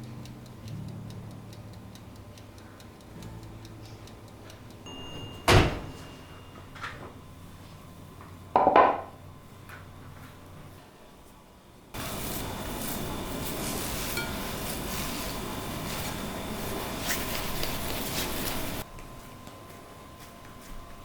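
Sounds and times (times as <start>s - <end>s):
kitchen knocks: 5.1s - 6.1s, 8.6s - 9.1s.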